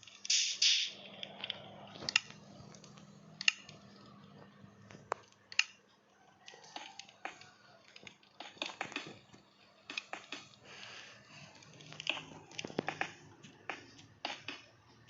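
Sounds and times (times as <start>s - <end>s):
sharp clicks and taps: 6.8s - 10.6s, 11.8s - 15.0s.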